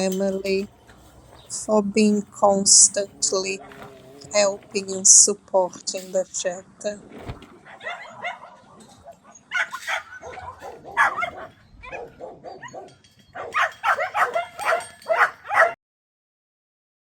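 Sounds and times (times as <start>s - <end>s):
dogs barking and yipping: 2.7s - 4.8s, 7.5s - 15.8s.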